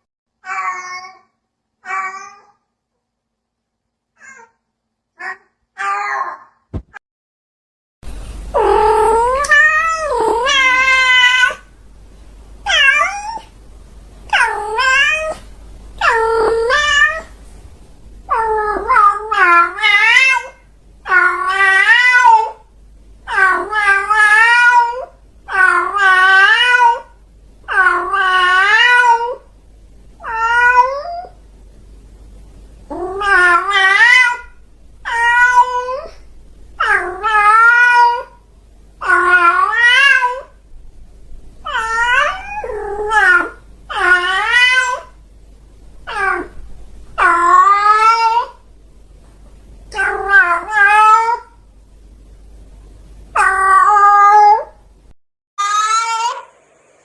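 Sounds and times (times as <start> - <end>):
cat meowing: 0.4 - 2.6, 4.2 - 4.6, 5.2 - 6.6, 8.6 - 11.6, 12.7 - 13.5, 14.3 - 15.4, 16.0 - 17.3, 18.3 - 22.6, 30.2 - 31.4, 32.9 - 36.2, 36.8 - 38.4, 39.0 - 40.5, 41.7 - 45.2, 46.1 - 46.6, 47.2 - 48.6, 49.9 - 51.6, 53.4 - 54.8, 55.6 - 56.5.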